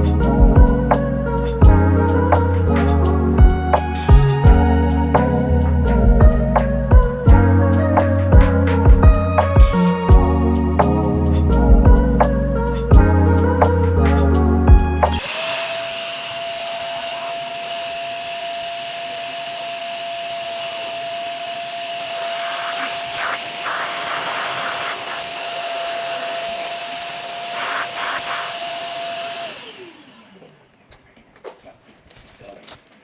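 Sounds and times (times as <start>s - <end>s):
motor spinning down: 15.0s - 30.8s
vacuum cleaner running: 15.1s - 30.8s.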